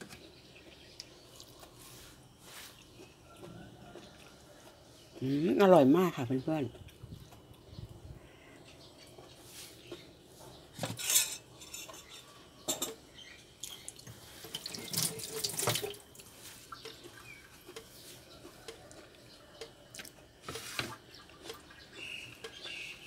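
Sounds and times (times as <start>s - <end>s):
wet chewing and lip-smacking: 2.8s - 5.2s.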